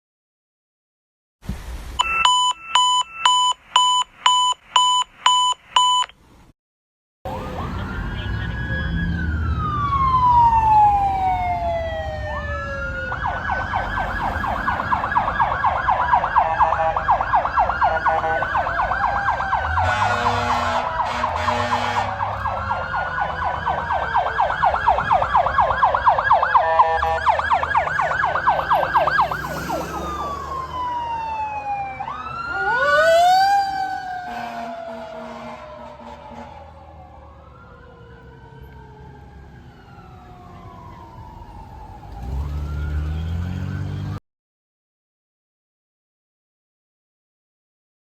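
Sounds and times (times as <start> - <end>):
emergency vehicle siren: 2.0 - 4.0, 7.3 - 44.2
second siren: 7.3 - 44.2.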